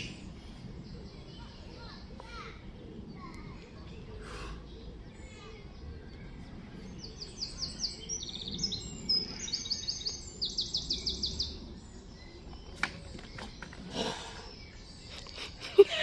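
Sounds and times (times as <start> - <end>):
songbird singing trills: 0.0 - 16.0.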